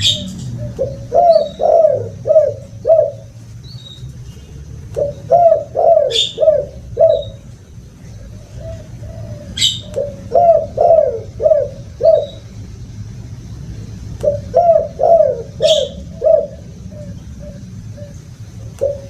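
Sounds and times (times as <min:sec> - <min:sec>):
dove cooing: 0:00.0 - 0:03.4, 0:04.6 - 0:12.5, 0:14.2 - 0:19.0
high bird chirp: 0:00.0 - 0:07.4, 0:08.1 - 0:12.5.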